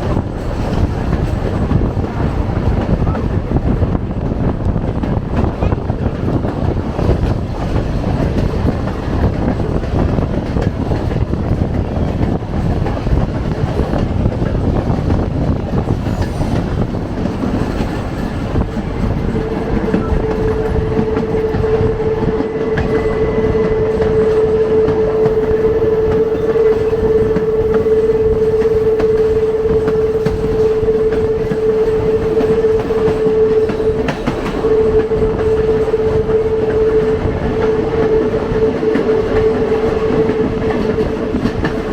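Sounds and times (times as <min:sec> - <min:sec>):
rail car rumbling on track: 0:00.0 - 0:41.9
steady tone: 0:17.9 - 0:41.9.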